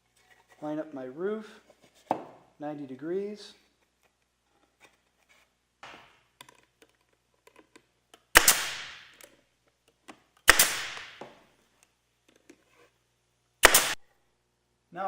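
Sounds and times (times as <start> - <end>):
pneumatic stapler firing: 8.4 - 9.1, 10.5 - 11.2, 13.6 - 14.0.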